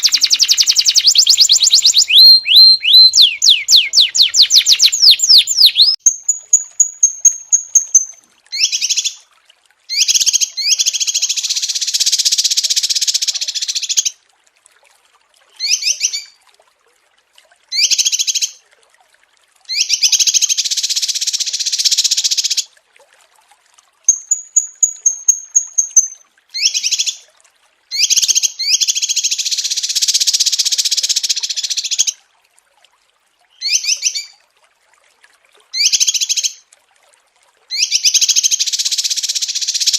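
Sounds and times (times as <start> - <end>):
small songbird singing: 0.0 - 9.2, 24.1 - 27.2.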